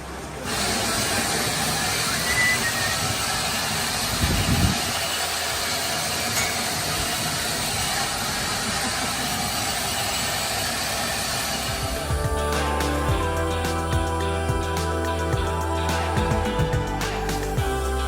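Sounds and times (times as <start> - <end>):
wind buffeting microphone: 4.0 - 5.2.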